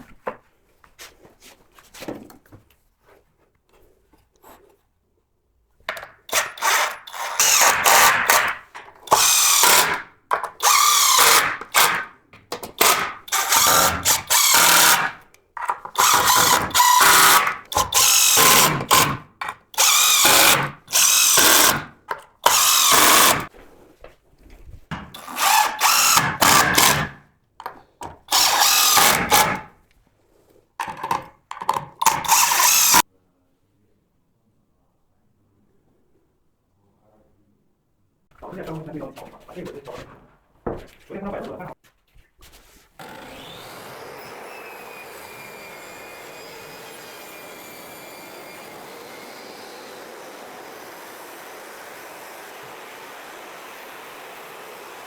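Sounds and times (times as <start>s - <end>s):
power drill running: 6.3s - 23.5s, 24.9s - 27.2s, 28.0s - 29.7s, 30.8s - 33.0s, 43.0s - 55.0s.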